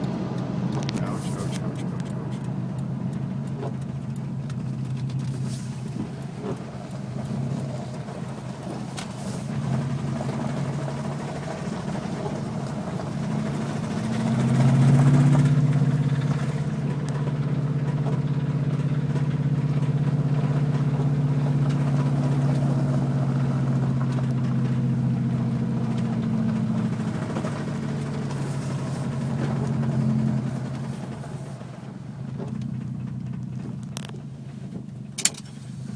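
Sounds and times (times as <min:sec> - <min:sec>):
car engine knocking: 0:00.0 - 0:35.9.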